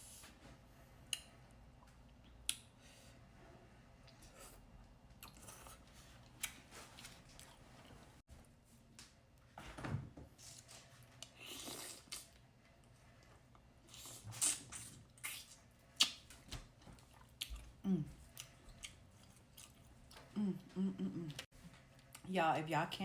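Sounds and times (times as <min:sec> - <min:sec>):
close chewing with wet smacks: 0:14.0 - 0:20.3.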